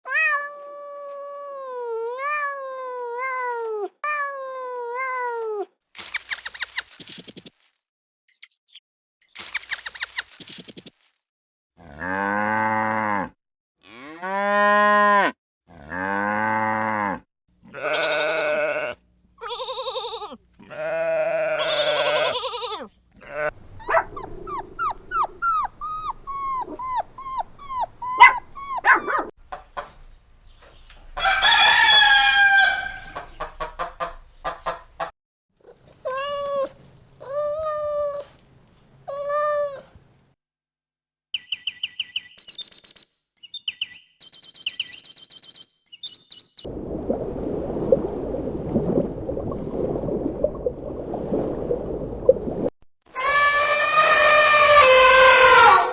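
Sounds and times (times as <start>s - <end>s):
farm animal calls: 17.7s - 29.3s.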